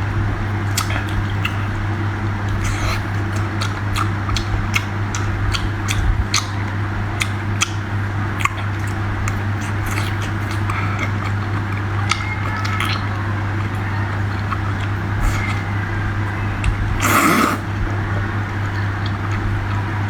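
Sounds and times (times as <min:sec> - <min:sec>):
steady low hum: 0:00.0 - 0:20.0
wet chewing: 0:00.6 - 0:20.0
mouth clicks: 0:16.6 - 0:17.7.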